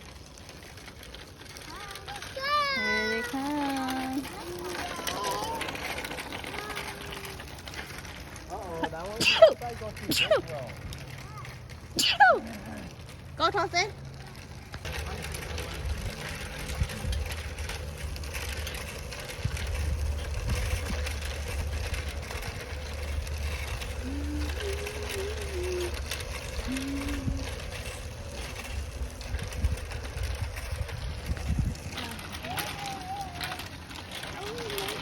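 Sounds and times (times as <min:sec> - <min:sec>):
bike rattling: 0:00.0 - 0:35.0
wind rumble on microphone: 0:15.7 - 0:18.3, 0:18.9 - 0:33.2.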